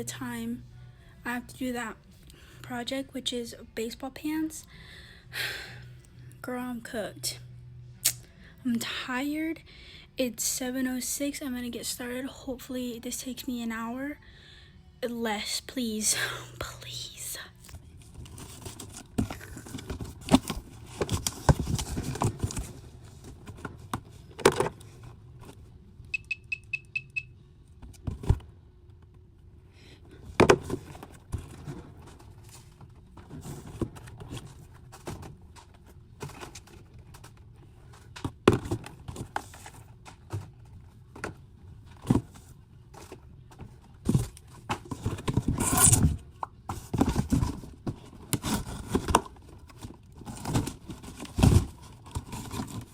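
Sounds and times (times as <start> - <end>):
boxes thumping and scraping: 18.3 - 25.2, 30.2 - 37.4, 38.0 - 52.9
short high electronic beeps: 26.1 - 27.3.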